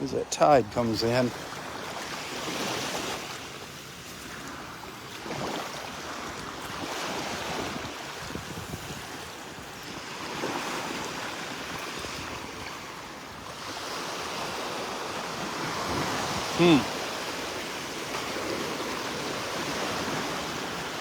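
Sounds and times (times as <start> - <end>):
waves washing up the beach: 0.0 - 21.0
wind rumbling on microphone: 6.0 - 16.6.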